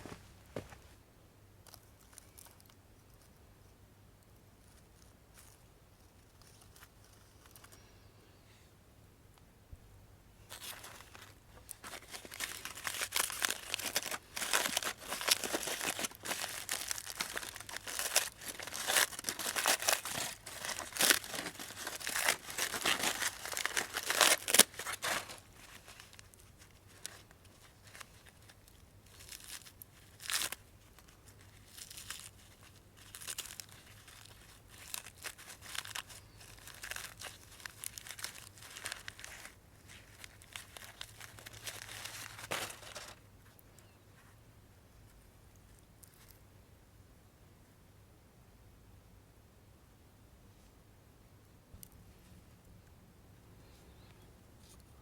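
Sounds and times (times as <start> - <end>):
aluminium foil crinkling and tearing: 10.5 - 43.2.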